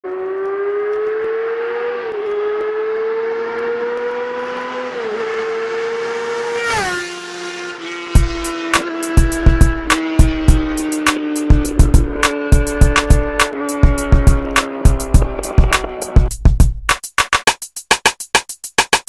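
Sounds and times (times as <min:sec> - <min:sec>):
motorcycle engine accelerating: 0:00.0 - 0:16.3
music beat: 0:08.0 - 0:19.0.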